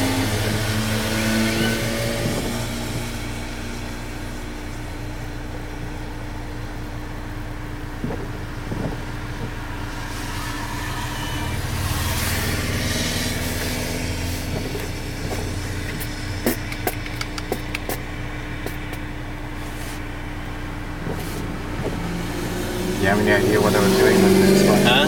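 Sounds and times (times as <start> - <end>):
car engine running: 0.0 - 25.0
sharp clicks: 16.0 - 18.0.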